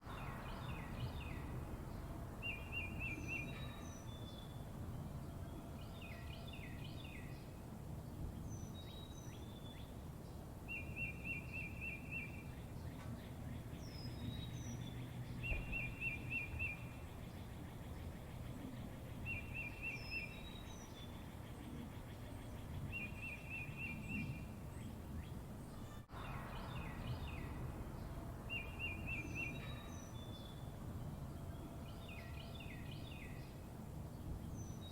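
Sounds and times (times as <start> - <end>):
bird chirps: 0.1 - 4.6, 10.7 - 30.7.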